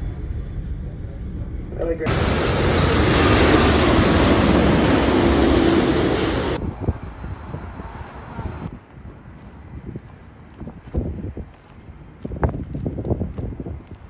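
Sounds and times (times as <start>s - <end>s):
faint wind on microphone: 0.1s - 14.0s
jet engines passing: 2.0s - 8.7s.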